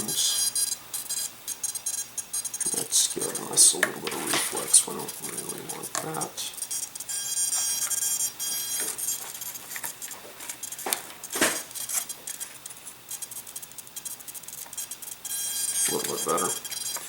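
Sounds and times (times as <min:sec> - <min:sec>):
faint high whine: 0:00.0 - 0:17.0.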